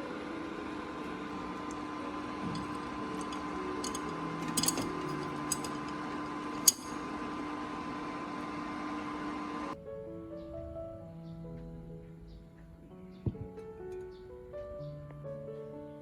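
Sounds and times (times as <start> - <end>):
kitchen appliance humming: 0.0 - 9.8.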